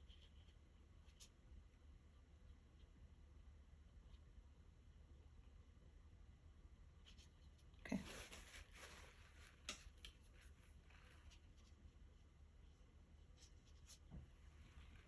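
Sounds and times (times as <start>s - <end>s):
paintbrush strokes on paper: 7.0s - 15.0s.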